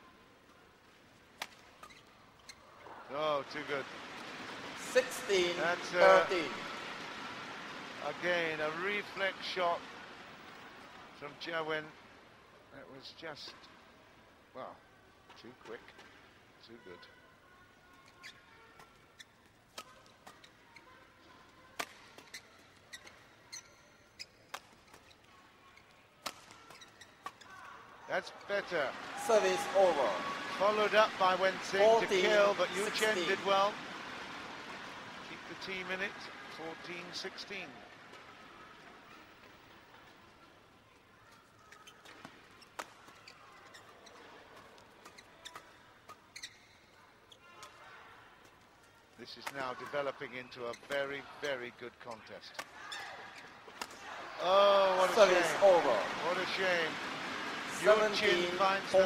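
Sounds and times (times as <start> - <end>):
faint hall ambience: 0.0 - 59.0
rackets hitting shuttlecock: 1.4 - 1.9, 26.2 - 27.5, 52.6 - 54.2
rackets striking shuttlecock: 1.4 - 1.9
shoe squeak: 1.4 - 2.9, 17.9 - 21.0, 21.9 - 27.8, 41.3 - 47.8, 50.2 - 53.9.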